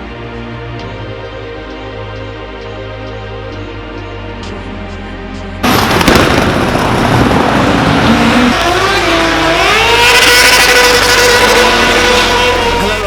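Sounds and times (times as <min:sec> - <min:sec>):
car engine revving: 0:05.6 - 0:13.0.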